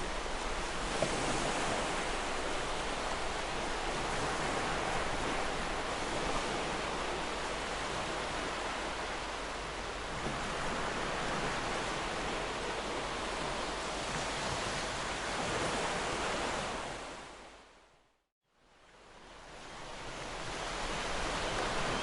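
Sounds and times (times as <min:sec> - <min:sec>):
ocean waves breaking: 0:00.0 - 0:17.4, 0:18.9 - 0:22.0.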